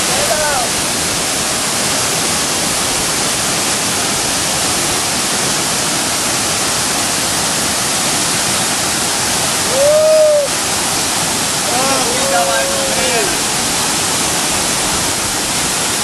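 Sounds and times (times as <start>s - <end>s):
waterfall roaring: 0.0s - 16.0s
short rising falling call: 9.6s - 10.6s.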